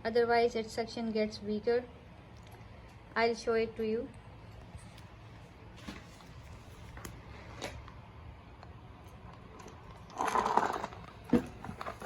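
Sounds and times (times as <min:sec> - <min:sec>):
rattling scrape: 0:10.1 - 0:12.0.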